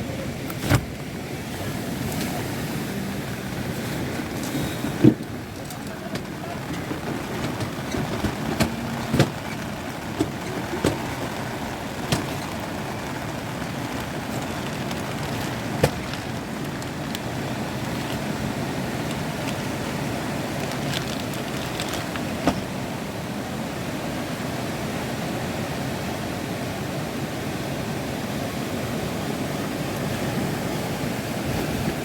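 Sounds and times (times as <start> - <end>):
surf: 0.0 - 32.0
wind: 0.0 - 32.0.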